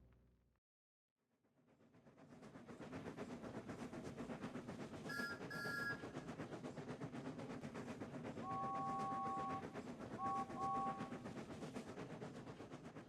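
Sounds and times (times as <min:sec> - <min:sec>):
train running rhythmically: 0:01.7 - 0:13.0
low two-note steam whistle: 0:05.1 - 0:06.1, 0:08.4 - 0:11.2
high two-note steam whistle: 0:08.5 - 0:11.1.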